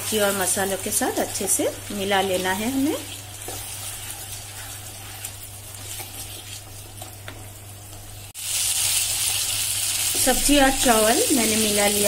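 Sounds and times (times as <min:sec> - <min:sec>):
rice frying in a pan: 0:00.0 - 0:12.0
spatula tapping and scraping: 0:02.2 - 0:08.1.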